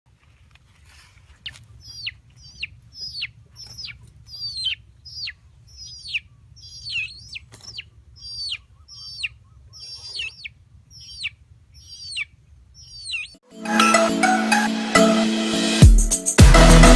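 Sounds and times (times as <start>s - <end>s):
bird calling sharply: 1.8s - 14.0s.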